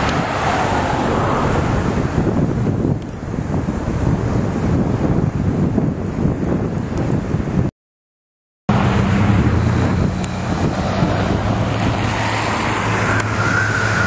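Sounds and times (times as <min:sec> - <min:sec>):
traffic noise with engine hum: 0:00.0 - 0:05.0, 0:08.7 - 0:14.0
wind buffeting microphone: 0:00.0 - 0:07.7, 0:08.7 - 0:14.0.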